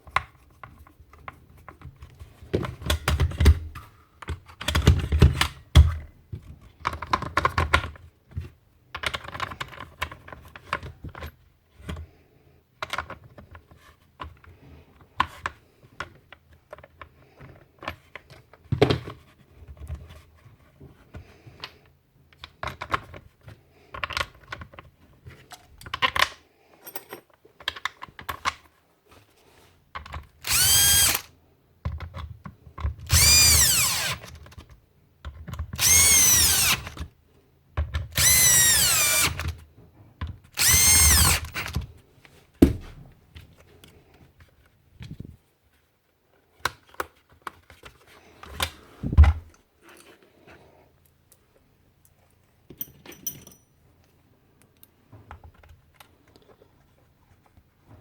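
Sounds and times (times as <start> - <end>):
small electric motor whining: 30.4 - 31.3, 33.1 - 34.3, 35.8 - 37.0, 38.2 - 39.4, 40.6 - 41.6.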